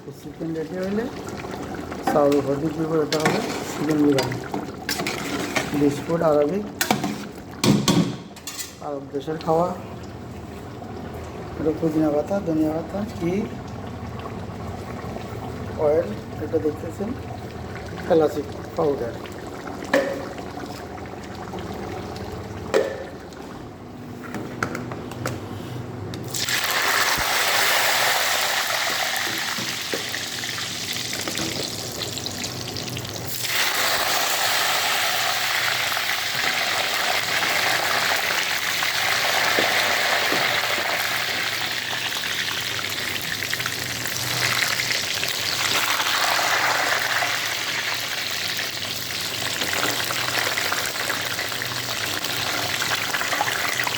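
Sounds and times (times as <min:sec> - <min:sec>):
food sizzling in hot oil: 0:26.3 - 0:53.9.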